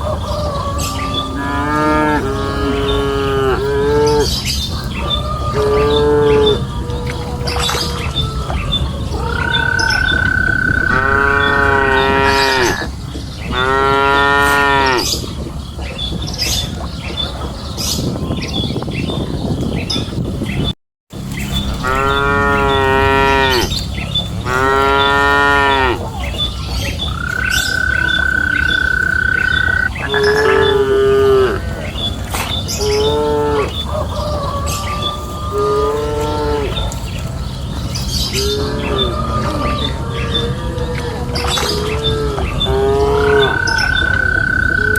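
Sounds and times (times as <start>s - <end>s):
cattle mooing: 0.9s - 4.3s, 9.2s - 15.1s, 21.8s - 26.1s, 27.1s - 31.8s, 32.8s - 33.8s, 35.1s - 37.0s.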